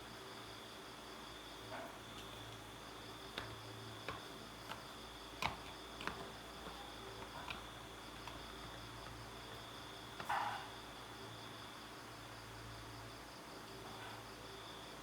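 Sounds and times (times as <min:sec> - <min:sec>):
light sharp clicks and taps: 0:03.3 - 0:09.2.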